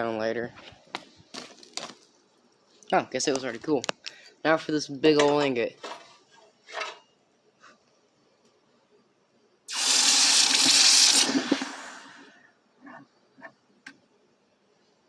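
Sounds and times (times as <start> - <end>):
hot metal hissing in water: 9.7 - 12.4.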